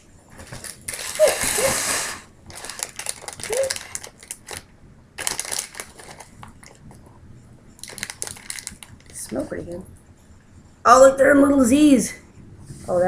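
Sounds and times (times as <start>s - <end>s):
plastic pouch crinkling: 0.4s - 1.7s, 2.5s - 6.8s, 7.8s - 9.4s.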